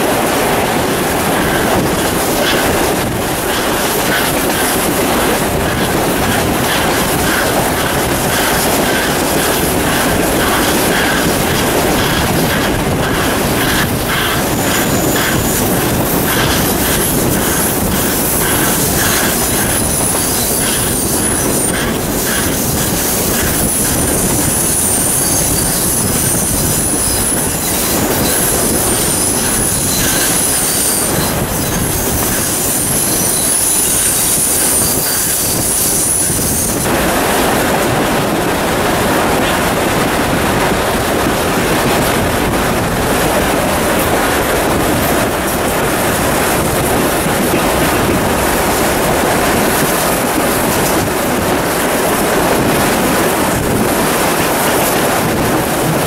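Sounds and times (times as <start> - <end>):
train carriages running on track: 0.0 - 56.0
wheels squealing: 1.4 - 36.9.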